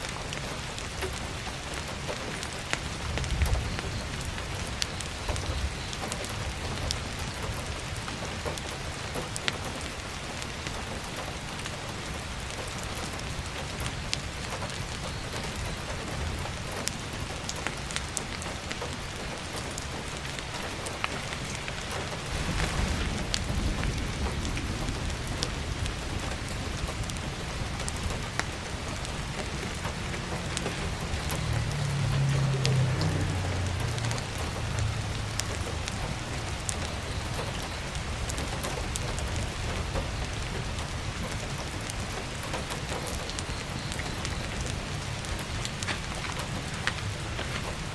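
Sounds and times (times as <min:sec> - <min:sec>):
firewood crackling: 0:00.0 - 0:47.9
heavy rain on a skylight: 0:00.0 - 0:47.9
low rumble: 0:21.5 - 0:37.4.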